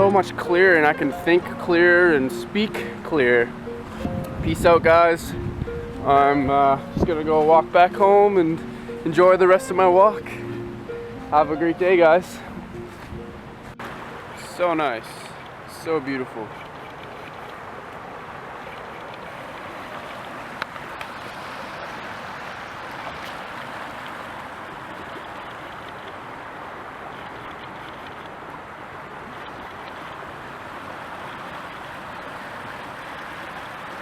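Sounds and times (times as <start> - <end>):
flowing water rushing: 0.0 - 34.0.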